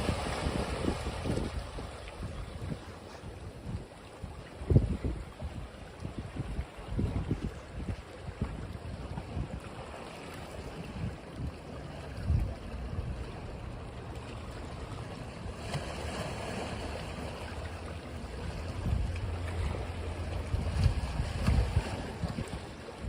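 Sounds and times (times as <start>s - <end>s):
wind buffeting microphone: 0.0s - 14.9s, 16.9s - 23.0s
ocean waves washing on beach: 0.0s - 23.0s.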